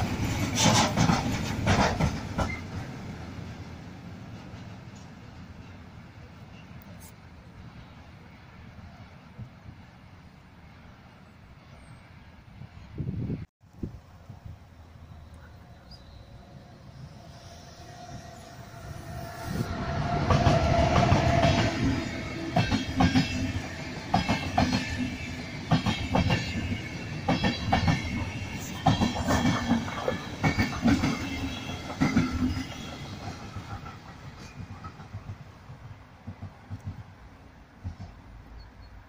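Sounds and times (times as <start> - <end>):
wheels clicking over rail joints: 0.0 - 2.9
train passing by: 0.0 - 39.0.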